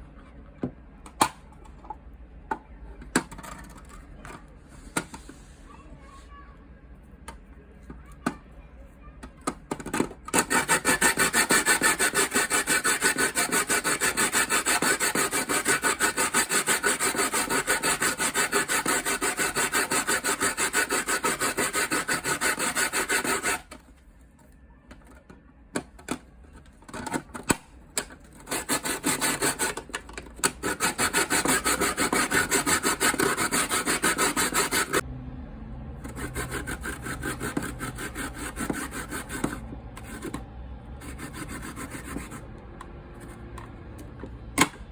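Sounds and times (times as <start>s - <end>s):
cucumber being grated: 10.3s - 23.7s, 28.4s - 35.0s, 36.0s - 40.4s, 41.0s - 42.4s.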